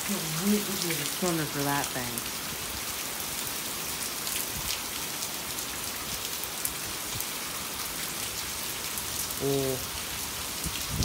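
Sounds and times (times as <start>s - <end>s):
rain drop ticks: 0.0s - 2.3s
steady rain pouring: 0.0s - 11.0s.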